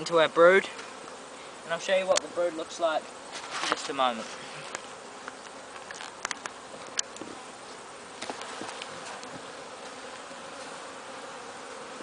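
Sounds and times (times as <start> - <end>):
bees humming: 0.0 - 12.0
sharp clicks: 4.7 - 7.2.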